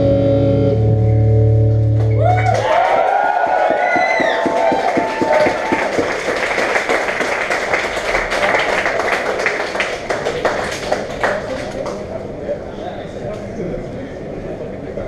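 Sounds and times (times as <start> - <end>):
live band music: 0.0 - 2.2
audience clapping: 2.0 - 12.1.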